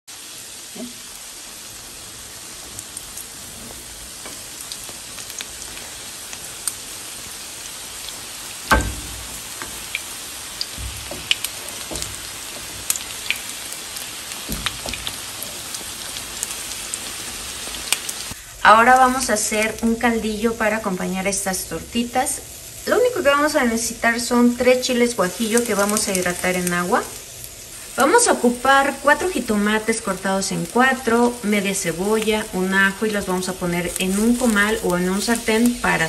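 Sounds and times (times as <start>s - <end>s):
patties sizzling in hot oil: 0.1s - 36.0s
spatula knocking on pan: 8.7s - 13.5s, 14.3s - 15.6s.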